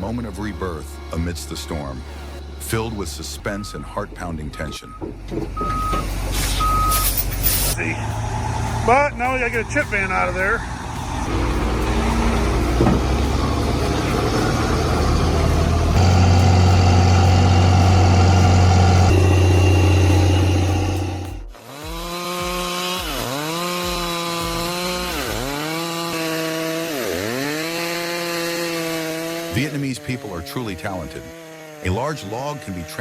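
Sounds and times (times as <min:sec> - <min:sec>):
heavy truck engine running: 0:00.2 - 0:21.5
chainsaw cutting a log: 0:11.0 - 0:33.0.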